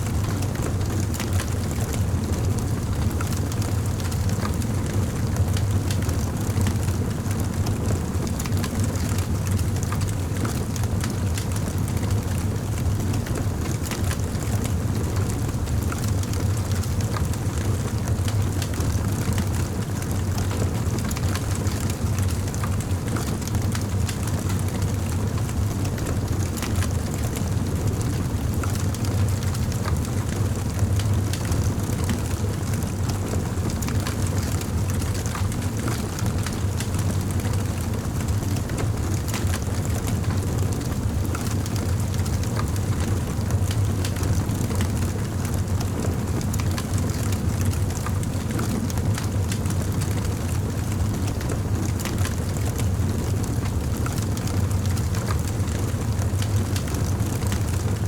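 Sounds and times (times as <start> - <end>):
campfire flames rumbling: 0.1 - 58.0
burning wood crackling and popping: 51.2 - 52.6.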